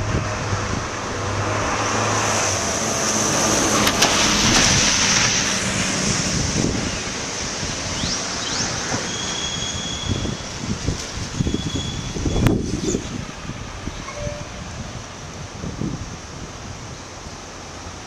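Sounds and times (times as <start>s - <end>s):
wind rushing: 10.1s - 16.9s.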